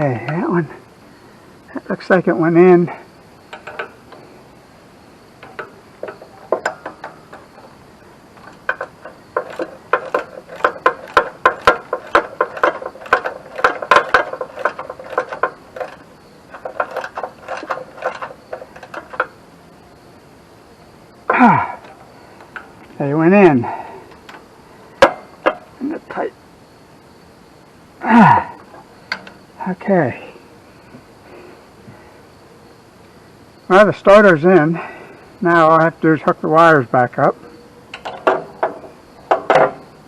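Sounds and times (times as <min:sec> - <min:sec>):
ratchet wrench clicking: 0:08.4 - 0:19.3.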